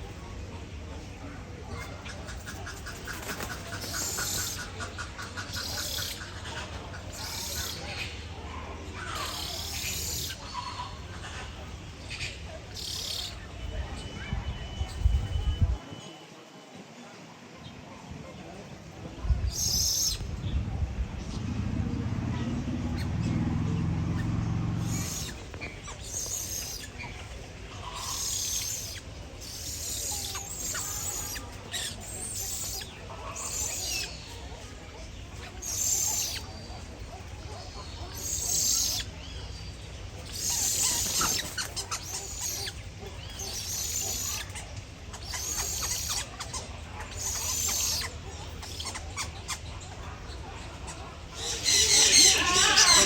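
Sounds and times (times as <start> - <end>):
high-pitched bird calls: 1.7 - 8.2, 9.0 - 15.6, 24.1 - 53.0.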